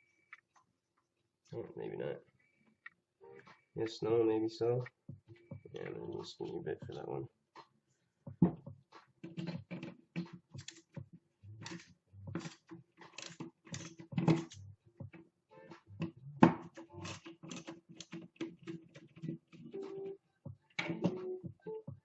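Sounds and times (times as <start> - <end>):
small metal tools clattering: 11.6 - 14.6.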